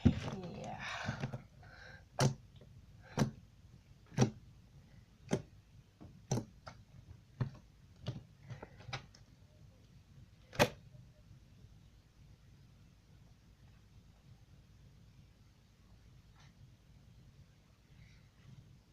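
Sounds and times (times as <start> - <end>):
slime being poked with clicky taps: 4.1 - 4.4, 5.2 - 6.8.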